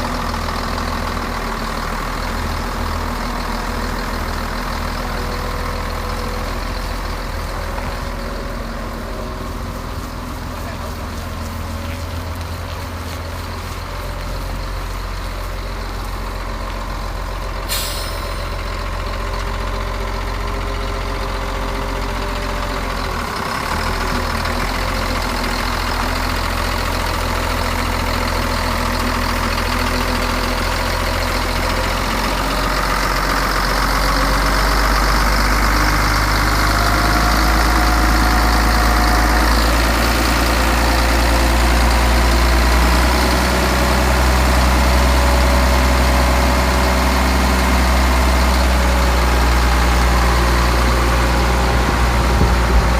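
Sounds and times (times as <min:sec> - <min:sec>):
diesel engine running: 0:00.0 - 0:52.9
air release hiss: 0:17.7 - 0:18.5.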